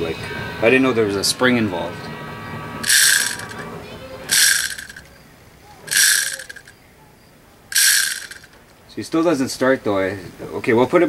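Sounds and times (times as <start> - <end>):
toy chainsaw ratcheting rasps: 2.8 - 3.6, 4.3 - 5.1, 5.9 - 6.7, 7.7 - 8.6.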